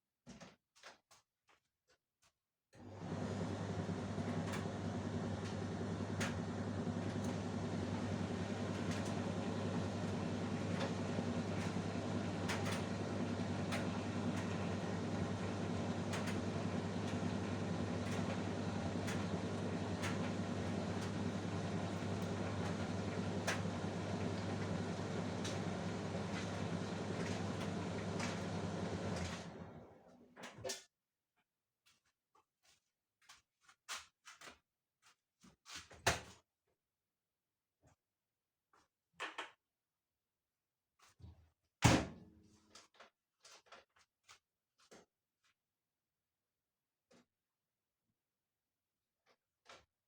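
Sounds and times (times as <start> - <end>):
tumble dryer humming: 2.9 - 30.0.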